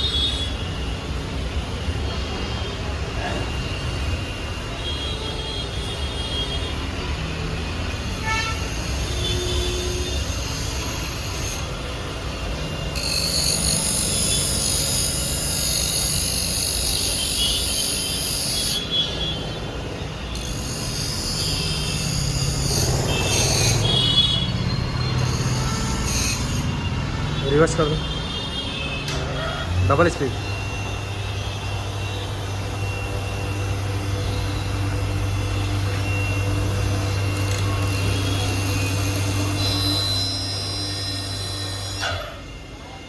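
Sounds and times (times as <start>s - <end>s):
high-pitched whine: 0.0s - 43.0s
grinder motor hum: 6.8s - 42.9s.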